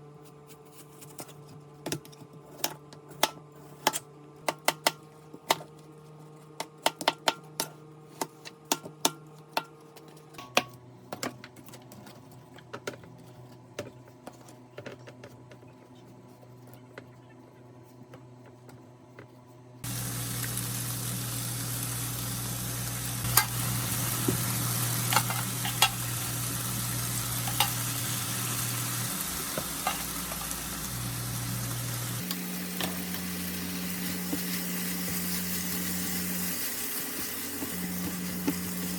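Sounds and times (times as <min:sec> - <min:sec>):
food sizzling in a frying pan: 0:19.8 - 0:38.9
kitchen utensils tapping and clicking: 0:25.0 - 0:26.1, 0:27.4 - 0:27.9, 0:29.5 - 0:30.6.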